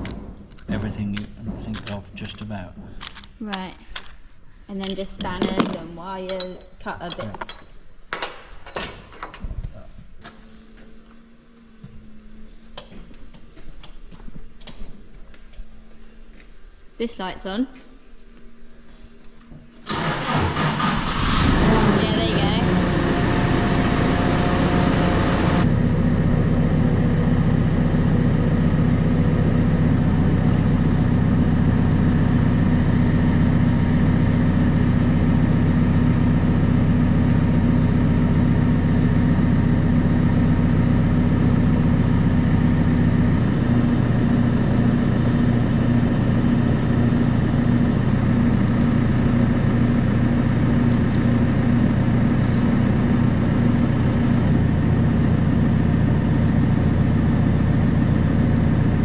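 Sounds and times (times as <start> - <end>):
diesel engine idling: 19.9 - 59.0.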